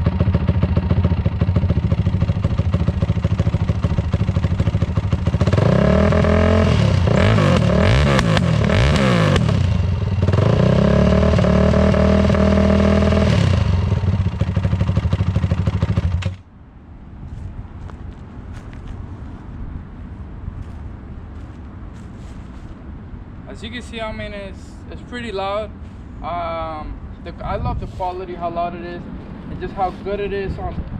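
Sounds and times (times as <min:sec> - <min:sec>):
motorcycle engine revving: 0:00.0 - 0:16.5.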